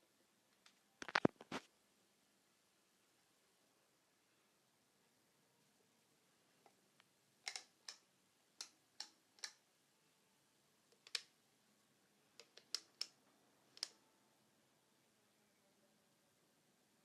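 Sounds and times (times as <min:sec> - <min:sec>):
sharp clicks: 0:07.4 - 0:09.6, 0:10.9 - 0:11.3, 0:12.4 - 0:14.0.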